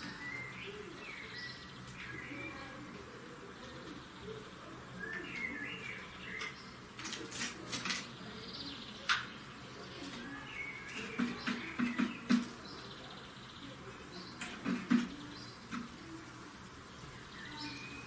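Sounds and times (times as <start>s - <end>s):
finches chirping: 0.0s - 18.0s
sharp taps and clicks: 10.9s - 12.6s.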